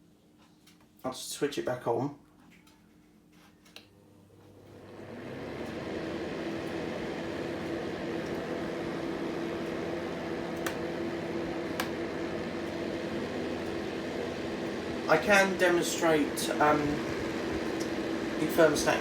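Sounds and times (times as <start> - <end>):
fan whirring hum: 0.0 - 19.0
heater switch click: 7.6 - 18.1.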